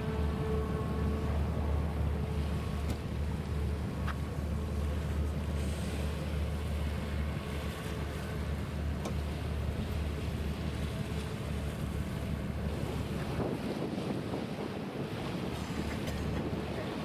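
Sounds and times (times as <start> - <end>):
wind buffeting microphone: 6.4 - 17.0.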